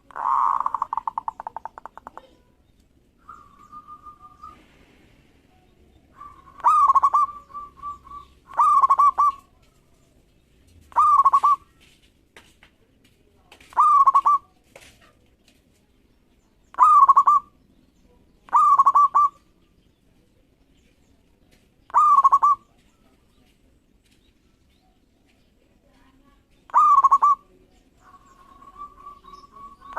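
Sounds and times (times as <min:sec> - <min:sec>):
dove cooing: 0:00.0 - 0:02.4, 0:06.1 - 0:09.6, 0:10.8 - 0:11.7, 0:13.7 - 0:14.5, 0:16.8 - 0:17.5, 0:18.5 - 0:19.5, 0:21.9 - 0:22.8, 0:26.7 - 0:29.9.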